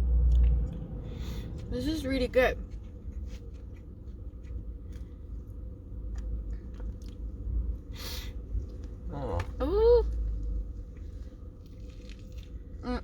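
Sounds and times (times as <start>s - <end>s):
steady low rumble: 0.0s - 13.0s
person chewing food: 2.6s - 12.8s.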